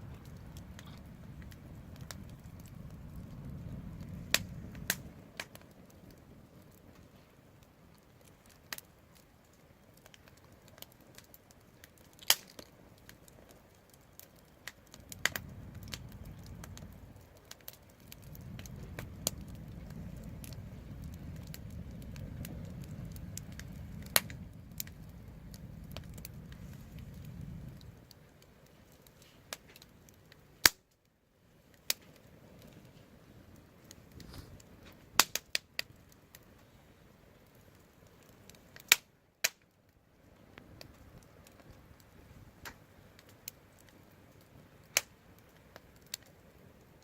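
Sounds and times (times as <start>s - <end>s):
low steady rumble: 0.0s - 7.7s, 14.8s - 30.6s
fire pops and snaps: 0.0s - 47.0s
wood fire crackling: 0.0s - 47.0s.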